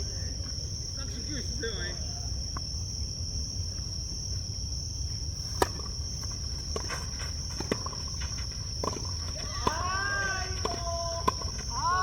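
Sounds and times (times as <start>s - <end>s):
insects droning: 0.0s - 12.0s
racket striking tennis ball: 5.5s - 11.8s.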